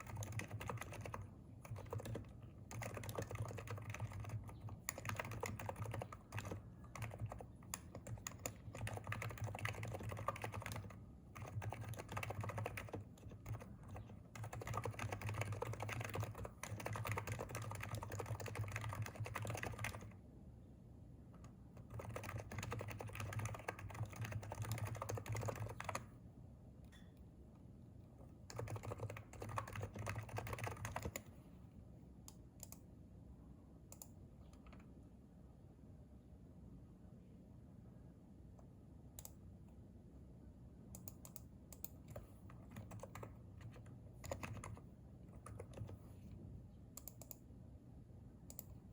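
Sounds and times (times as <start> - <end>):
keyboard typing: 0.0 - 20.2, 21.4 - 26.1, 28.4 - 31.3, 41.0 - 46.0, 47.0 - 47.4.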